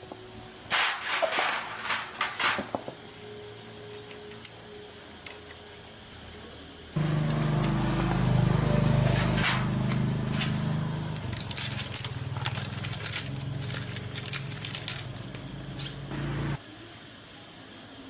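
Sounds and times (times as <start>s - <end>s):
motor running: 7.0s - 16.6s.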